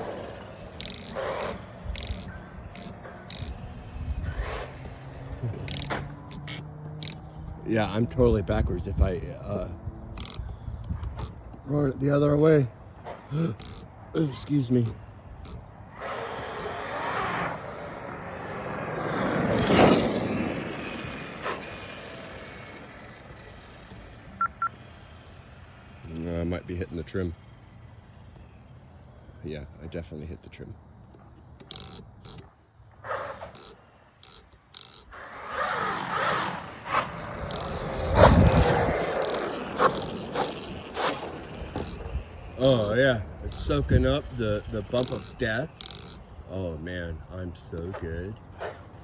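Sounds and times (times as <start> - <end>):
electric motor whining: 0.0 - 7.6
tyres scraping: 0.0 - 8.1, 9.2 - 22.0, 31.2 - 46.5
remote control truck driving past: 0.0 - 29.4, 30.8 - 47.0
short beeps: 24.4 - 24.7.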